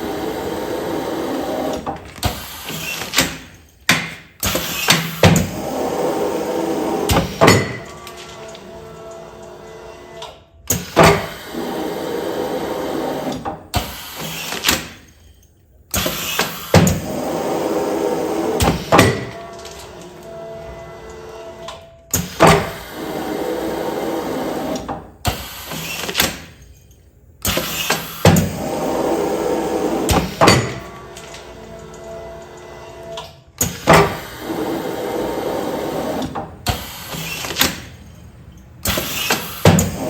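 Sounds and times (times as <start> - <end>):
sealing machine running: 0.0 - 3.6, 16.0 - 20.4, 27.5 - 38.2, 38.8 - 40.0.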